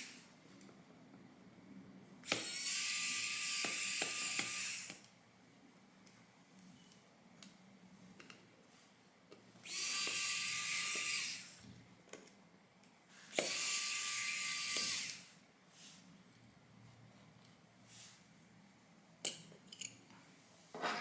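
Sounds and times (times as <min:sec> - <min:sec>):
electric screwdriver running: 0:13.4 - 0:15.3.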